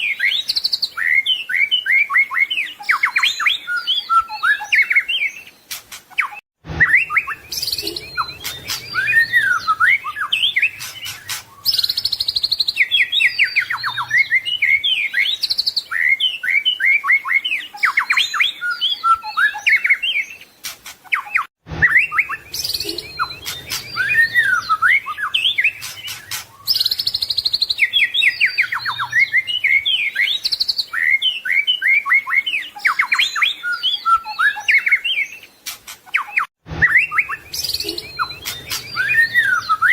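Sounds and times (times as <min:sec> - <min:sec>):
songbird singing whistles and trills: 0:00.0 - 0:39.9.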